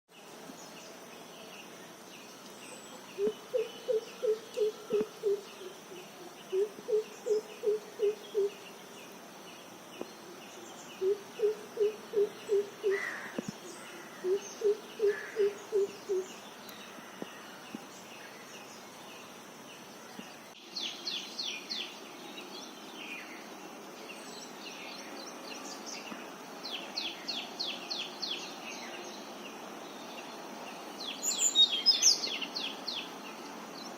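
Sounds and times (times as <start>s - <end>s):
background hiss: 0.1s - 33.9s
bird hooting low notes: 11.0s - 16.3s.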